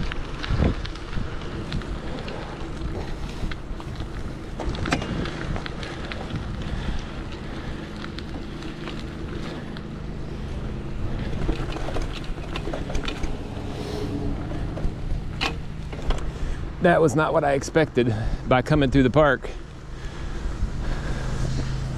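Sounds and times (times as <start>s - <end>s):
bicycle tyre rumble: 0.0s - 21.9s
wind rushing over microphone: 0.0s - 21.9s
small clicks and rattles: 11.1s - 13.6s.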